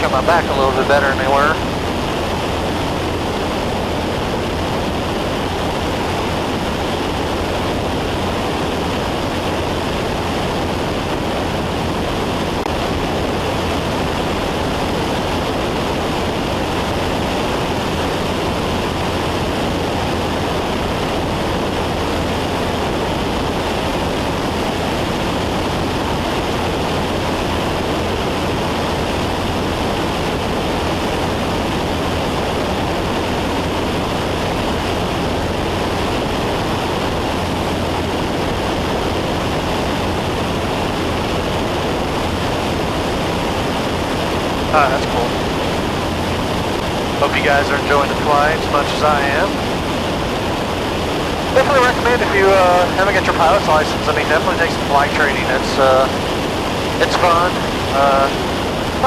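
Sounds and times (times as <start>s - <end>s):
rushing air: 0.0s - 59.0s
small plane engine drone in cabin: 0.0s - 59.0s.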